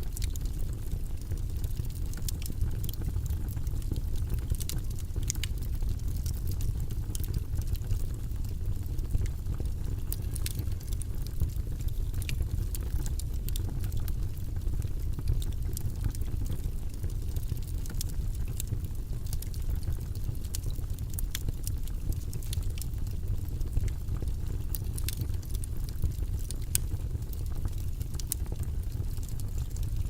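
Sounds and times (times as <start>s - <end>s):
small crackles and clicks: 0.0s - 30.0s.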